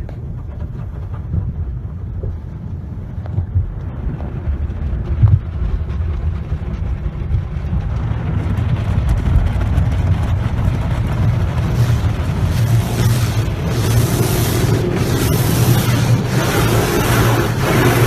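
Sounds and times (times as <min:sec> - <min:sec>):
car wash spraying and scrubbing: 0:00.0 - 0:18.0
hiss: 0:11.6 - 0:18.0.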